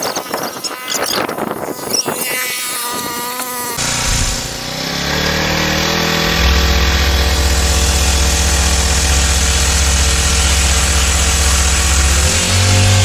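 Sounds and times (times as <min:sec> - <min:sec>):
small engine running: 0:03.3 - 0:13.0.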